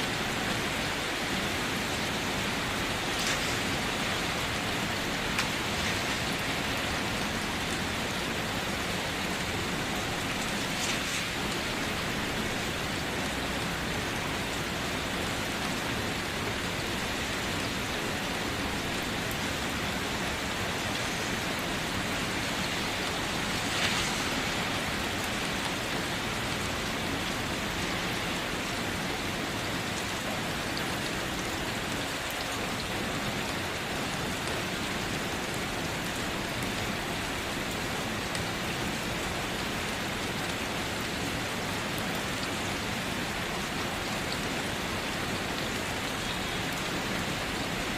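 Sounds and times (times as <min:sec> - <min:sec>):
rain patter: 0:00.0 - 0:47.9
splash: 0:02.9 - 0:07.5, 0:10.0 - 0:12.7, 0:22.1 - 0:26.8.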